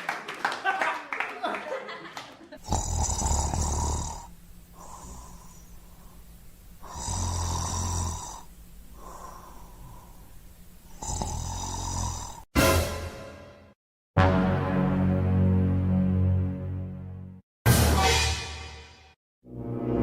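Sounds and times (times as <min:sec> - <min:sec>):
person snoring: 0:02.6 - 0:12.5
quiet breath out: 0:03.0 - 0:07.3, 0:08.3 - 0:10.6.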